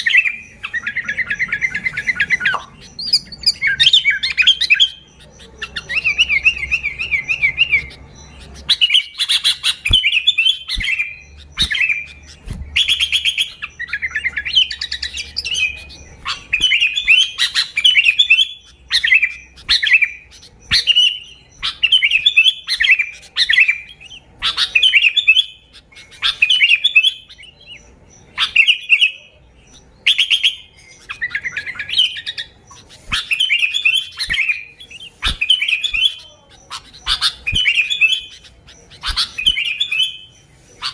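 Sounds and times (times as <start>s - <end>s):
bulbul singing: 0.0s - 40.9s.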